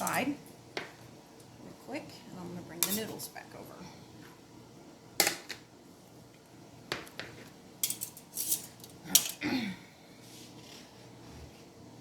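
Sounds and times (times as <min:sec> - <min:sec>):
kitchenware clattering: 0:06.9 - 0:09.4.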